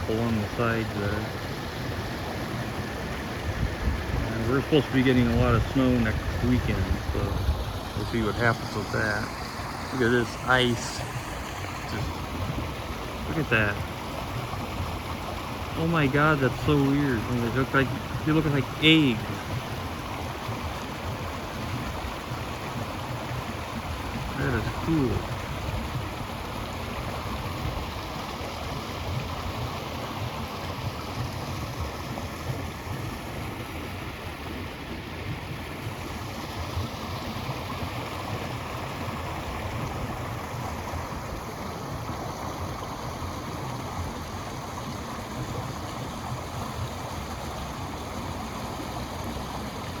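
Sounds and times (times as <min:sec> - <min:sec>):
creek water rushing: 0:00.0 - 0:50.0
wind rumble on microphone: 0:02.8 - 0:09.0.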